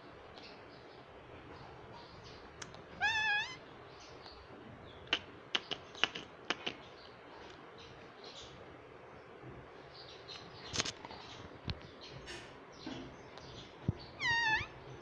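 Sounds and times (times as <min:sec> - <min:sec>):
parrot call: 0:03.0 - 0:03.6, 0:14.2 - 0:14.8.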